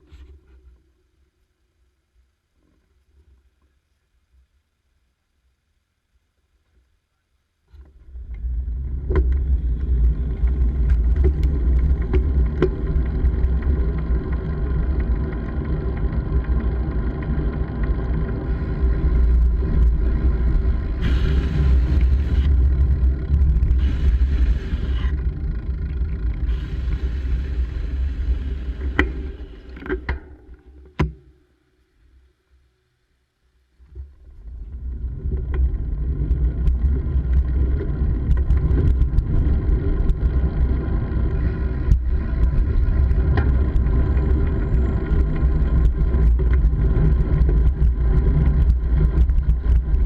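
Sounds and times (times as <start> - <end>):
wind rumbling on microphone: 7.8 - 30.2, 33.9 - 50.0
road noise: 8.0 - 30.0, 34.7 - 50.0.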